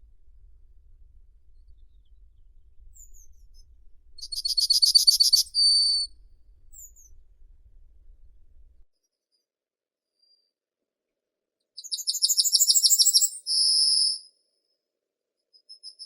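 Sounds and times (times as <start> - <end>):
faint thin chirps: 1.6 - 7.2
songbird trilling: 4.2 - 7.2.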